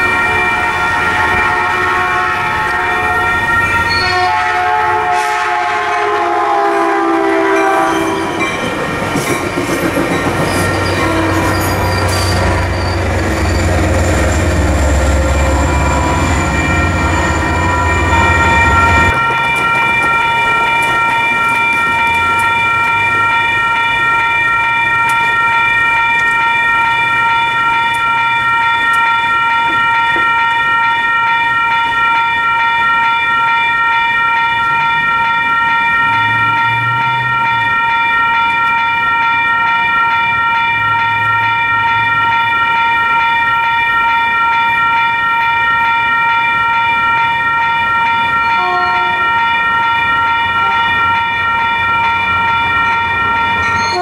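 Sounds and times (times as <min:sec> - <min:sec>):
train horn: 0:00.0 - 0:08.4, 0:10.7 - 0:13.8, 0:14.4 - 0:30.3, 0:48.3 - 0:52.1, 0:52.8 - 0:54.0
train rumbling past: 0:00.0 - 0:32.6, 0:33.3 - 0:54.0
crossing warning bell ringing: 0:00.0 - 0:54.0.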